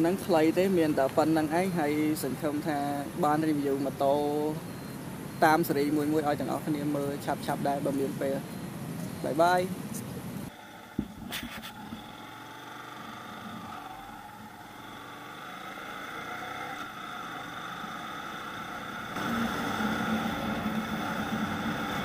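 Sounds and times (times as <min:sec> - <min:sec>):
wind and road noise: 0:00.0 - 0:22.0
motorcycle engine accelerating: 0:11.0 - 0:22.0.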